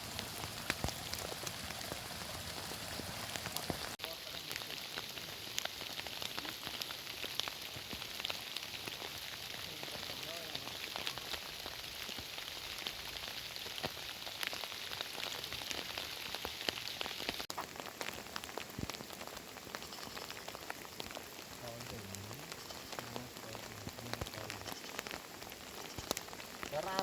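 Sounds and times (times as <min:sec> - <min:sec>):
heavy rain hiss: 0:00.0 - 0:27.0
raindrops ticking close by: 0:00.0 - 0:27.0.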